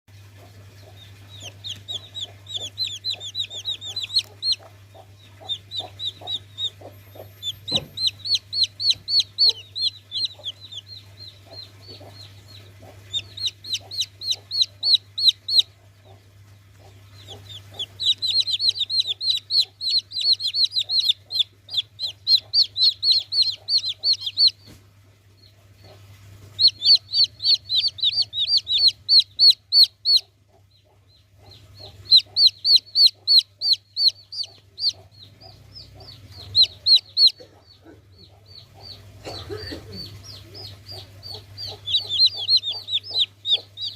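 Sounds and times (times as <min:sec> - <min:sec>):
baby chicks peeping: 0:00.1 - 0:43.9
knock: 0:07.7 - 0:08.0.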